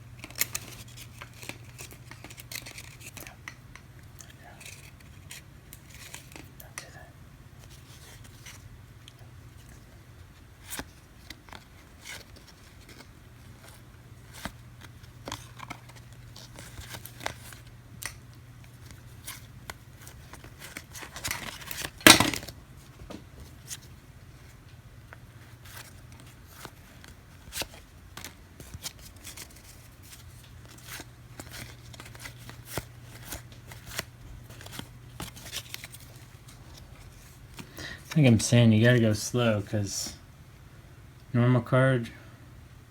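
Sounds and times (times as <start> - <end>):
trading cards flipped: 0.2 - 3.6, 10.6 - 24.0, 25.5 - 38.4
paper rustle or rip: 18.8 - 22.5, 25.4 - 38.4.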